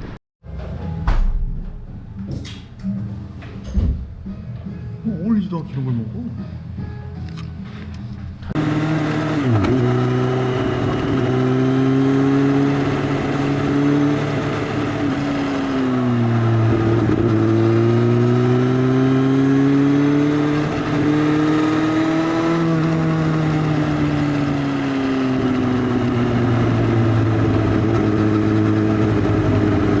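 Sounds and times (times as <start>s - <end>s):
loud motorcycle engine revving: 8.5s - 30.0s.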